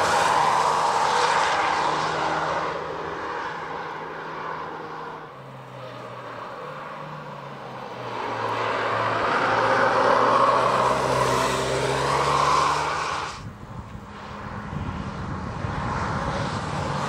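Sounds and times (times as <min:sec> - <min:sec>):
car engine revving past: 0:07.0 - 0:13.5.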